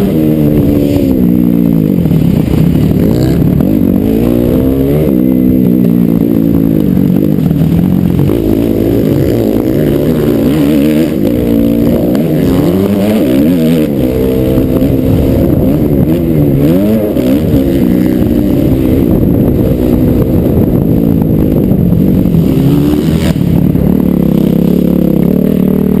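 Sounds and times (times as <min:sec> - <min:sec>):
motocross bike engine revving: 0:00.0 - 0:26.0.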